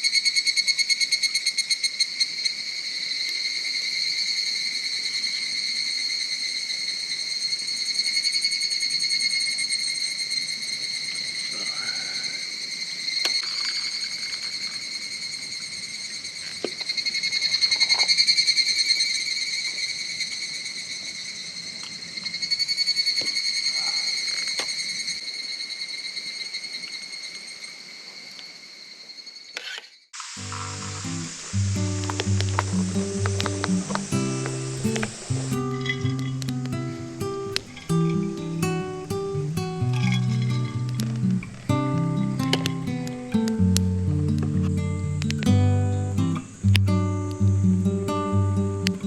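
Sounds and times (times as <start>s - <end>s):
insects chirring: 0.0s - 49.0s
faint clicks: 30.2s - 37.9s, 40.0s - 45.5s.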